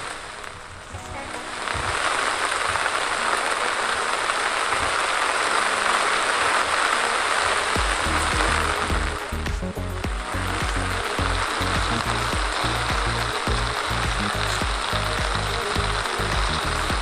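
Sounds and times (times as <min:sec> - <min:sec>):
rain hiss: 0:00.0 - 0:17.0
music bass beat: 0:07.8 - 0:17.0.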